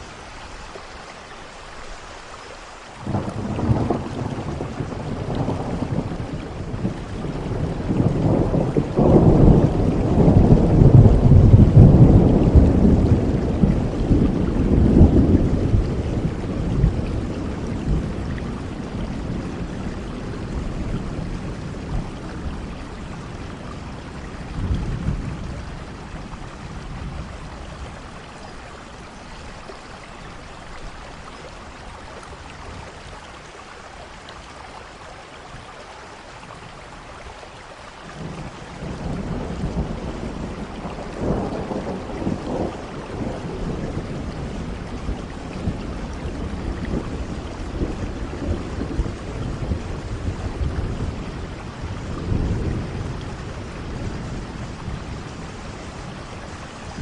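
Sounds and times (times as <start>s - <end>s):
steady rain: 0.0s - 57.0s
thunder rumbling: 3.0s - 29.7s, 38.2s - 57.0s.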